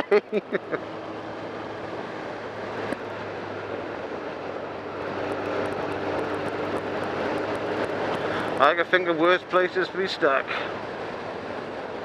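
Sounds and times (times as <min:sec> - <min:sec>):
motorcycle engine running: 0:00.8 - 0:09.6.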